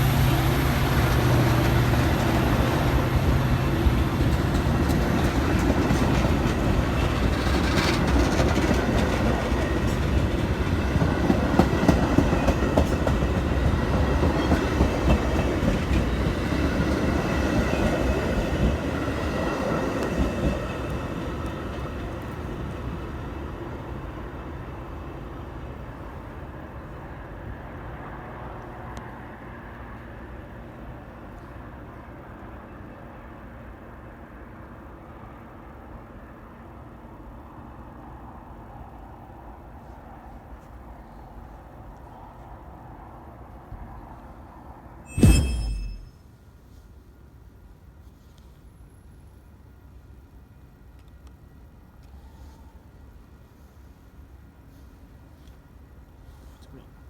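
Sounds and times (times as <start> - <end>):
train wheels clacking over rail joints: 4.0 - 17.0.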